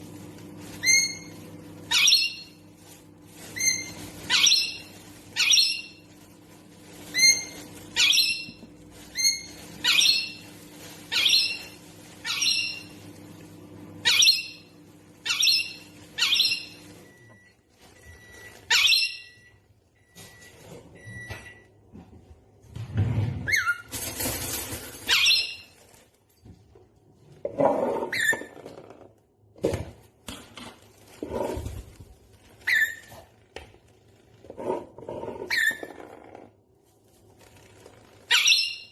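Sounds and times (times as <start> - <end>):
parrot squawking: 0.8 - 1.3, 1.9 - 2.6, 3.6 - 6.0, 7.1 - 10.4, 11.1 - 13.0, 14.0 - 16.9, 18.7 - 19.4, 25.1 - 25.7, 27.8 - 28.7, 32.6 - 33.3, 35.3 - 36.2, 38.2 - 38.9.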